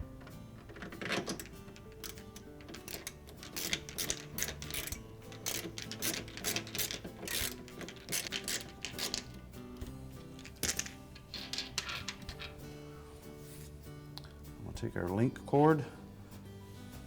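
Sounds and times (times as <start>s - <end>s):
nut driver clicking and scraping: 0.0s - 12.7s.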